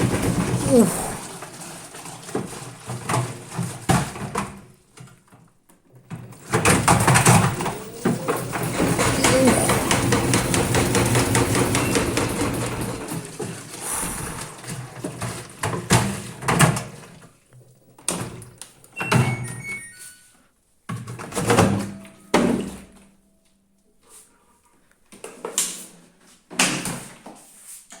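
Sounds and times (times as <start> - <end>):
washing machine knocking and clattering: 0.0 - 1.3, 2.0 - 4.7, 6.0 - 13.6.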